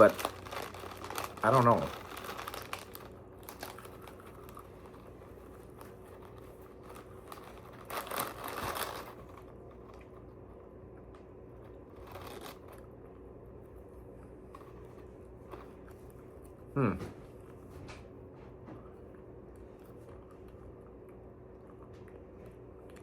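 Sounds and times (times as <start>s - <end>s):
packaging crinkling and rustling: 0.0s - 13.2s, 14.3s - 16.5s.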